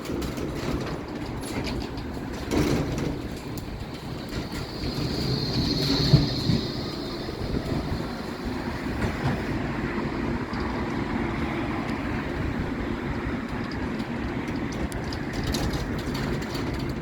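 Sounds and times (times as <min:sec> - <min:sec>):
tram rumble and hum: 0:00.0 - 0:17.0
wheel clicks on track: 0:13.4 - 0:17.0.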